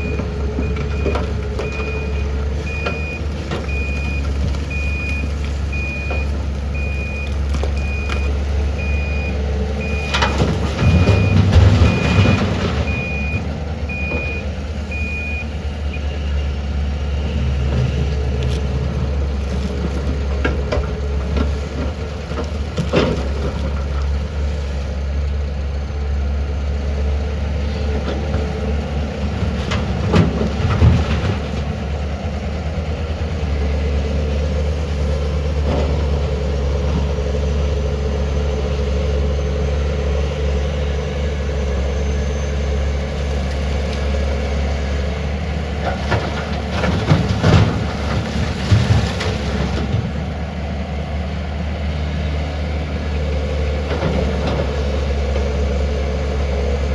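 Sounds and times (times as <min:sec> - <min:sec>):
reversing alarm beeping: 0:00.0 - 0:16.5
heavy diesel machinery drone: 0:00.0 - 0:56.9.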